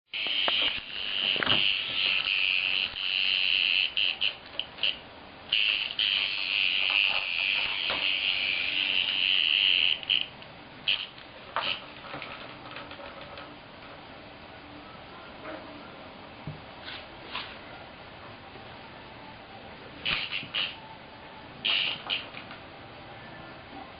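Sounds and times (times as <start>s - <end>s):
cicada buzzing: 0.1s - 12.0s, 20.0s - 20.9s, 21.6s - 22.4s.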